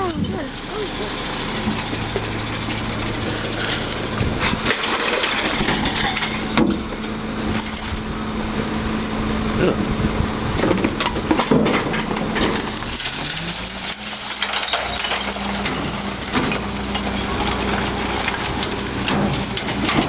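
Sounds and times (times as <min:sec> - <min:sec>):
garbage truck engine running: 0:00.0 - 0:20.0
irregular knocks and clatter: 0:01.6 - 0:13.2.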